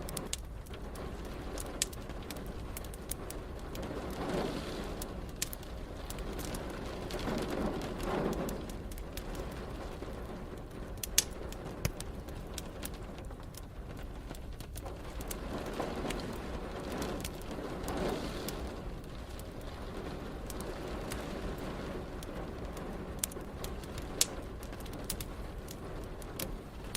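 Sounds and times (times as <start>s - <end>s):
distant thunder rumbling: 0.0s - 13.2s
rain hiss: 0.0s - 26.9s
wood fire crackling: 0.0s - 26.9s.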